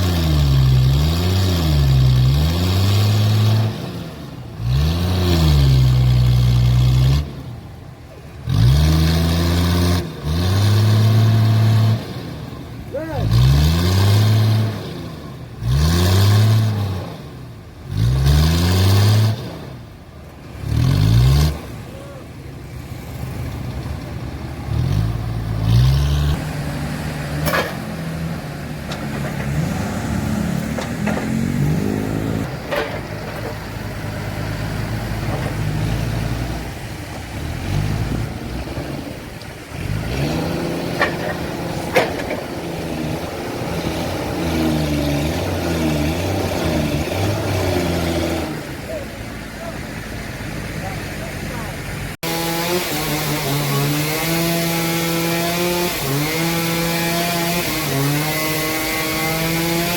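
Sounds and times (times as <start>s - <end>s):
heavy machinery engine revving: 0.0s - 59.9s
sharp knocks: 30.6s - 31.6s.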